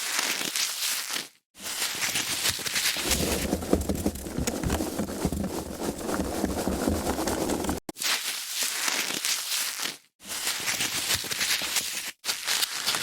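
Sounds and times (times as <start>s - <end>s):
foam packaging being handled: 3.0s - 7.9s.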